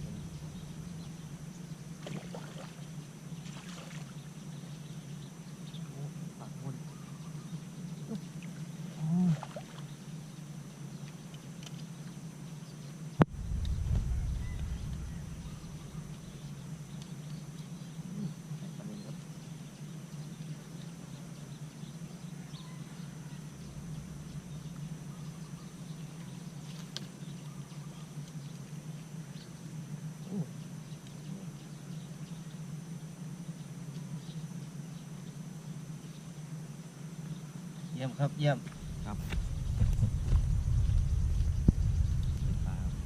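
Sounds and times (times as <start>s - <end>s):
low hum: 0.0s - 5.7s, 13.1s - 18.3s, 22.8s - 28.4s, 38.5s - 43.0s
faint chirps: 0.0s - 10.4s, 12.5s - 32.7s, 37.2s - 43.0s.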